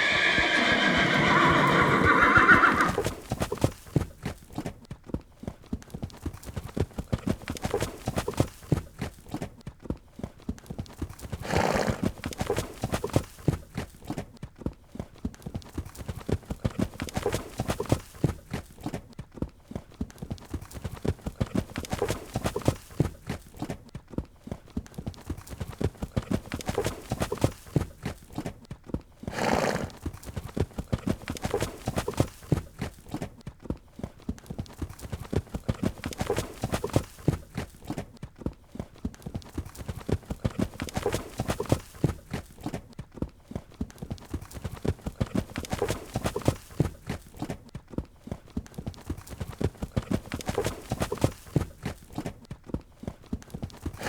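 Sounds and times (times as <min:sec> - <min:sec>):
horse neighing: 0:00.0 - 0:03.2
horse hoofbeats clip-clopping: 0:00.0 - 0:54.0.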